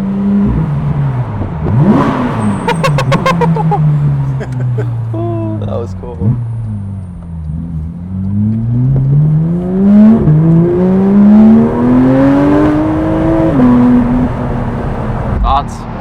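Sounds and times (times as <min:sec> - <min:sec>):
sports car engine accelerating: 0:00.0 - 0:16.0.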